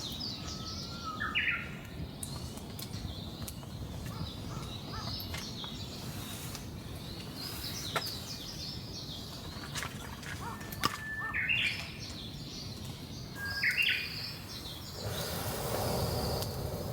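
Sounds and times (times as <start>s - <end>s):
wild birds chirping: 10.4s - 16.9s
steady background hiss: 13.1s - 16.9s.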